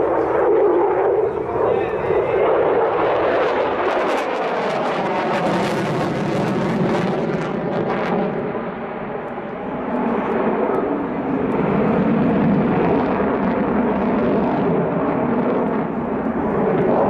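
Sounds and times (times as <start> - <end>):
aircraft flying past: 0.0 - 17.0.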